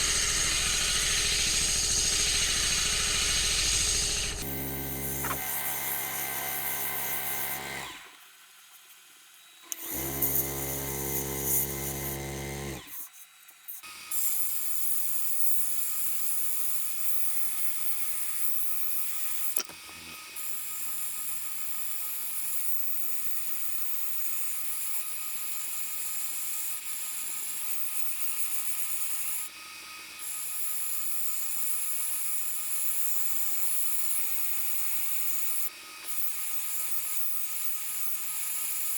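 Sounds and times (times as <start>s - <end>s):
wood lathe humming: 0.6s - 8.2s, 9.7s - 12.9s.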